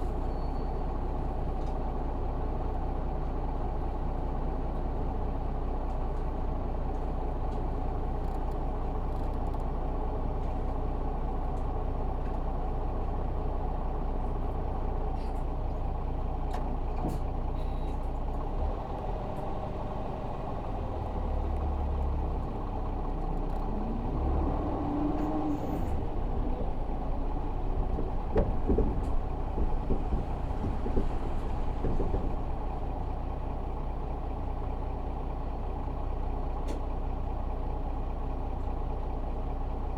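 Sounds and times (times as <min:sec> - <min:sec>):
bus diesel engine running: 0:00.0 - 0:39.9
knocks and rattles: 0:25.2 - 0:33.2.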